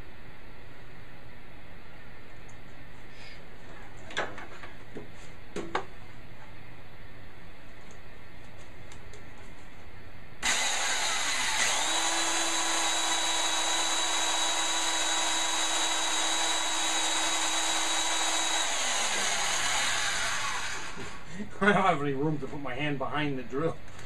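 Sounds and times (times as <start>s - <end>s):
power drill motor: 10.4s - 21.3s.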